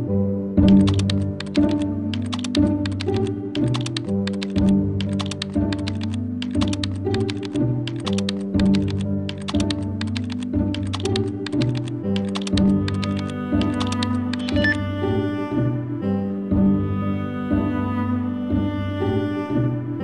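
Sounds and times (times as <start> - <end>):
background music with low notes: 0.0 - 20.0
keyboard typing clicks: 0.7 - 14.8.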